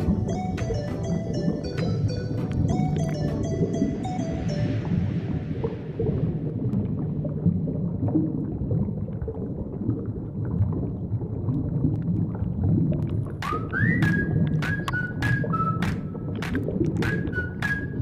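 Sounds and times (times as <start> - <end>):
high gliding tones: 0.0 - 6.4
underwater rumbling water: 0.0 - 18.0.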